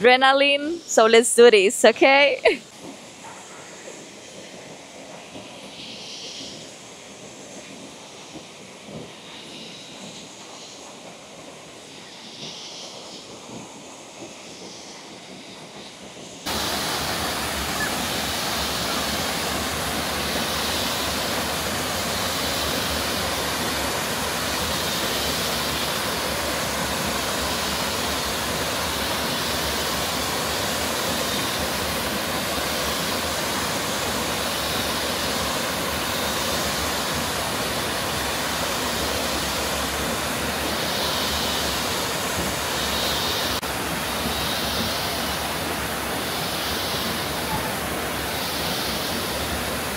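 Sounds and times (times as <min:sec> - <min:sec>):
waterfall rushing: 0:16.5 - 0:49.9.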